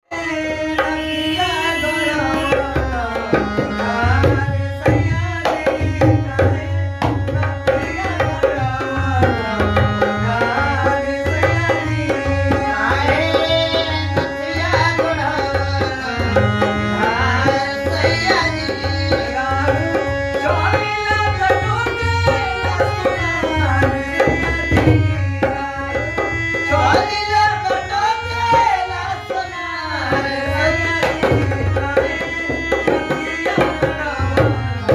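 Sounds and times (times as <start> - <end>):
harmonium melody: 0.0 - 34.9
hand drum rhythm: 11.2 - 27.0, 31.0 - 34.9.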